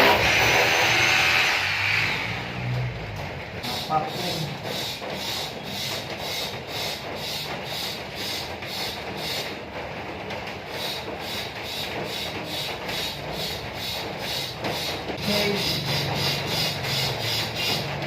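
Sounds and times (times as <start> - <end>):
hand tool rasping: 10.8 - 17.9.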